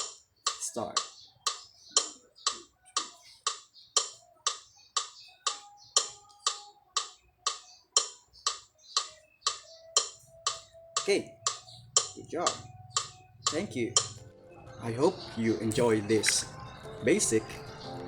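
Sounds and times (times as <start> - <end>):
metronome ticking: 0.0 - 14.3.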